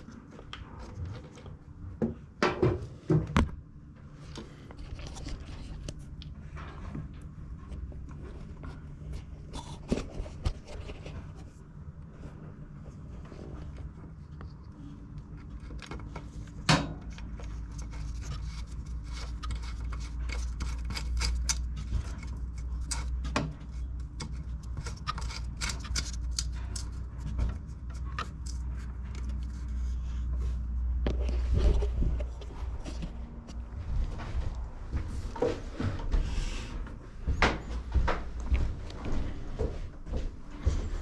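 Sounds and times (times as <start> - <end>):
steady low rumble: 25.6 - 41.0.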